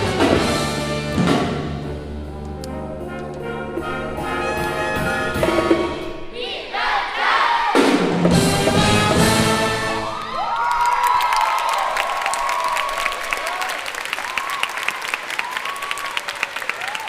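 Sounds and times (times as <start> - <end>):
jazz big band playing: 0.0 - 6.3, 7.8 - 10.2
trumpets and trombones: 0.0 - 10.2.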